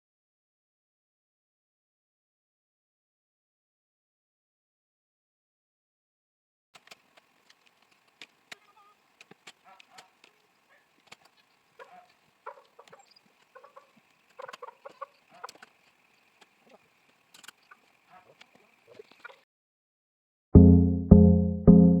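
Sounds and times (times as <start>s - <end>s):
chickens clucking: 11.8s - 19.4s.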